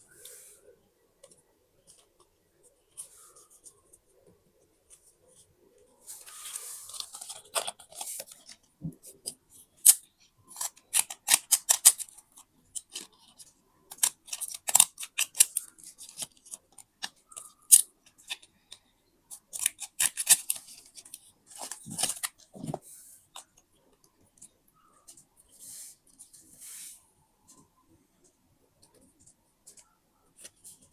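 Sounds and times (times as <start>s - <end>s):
paper rustling: 6.0s - 9.2s.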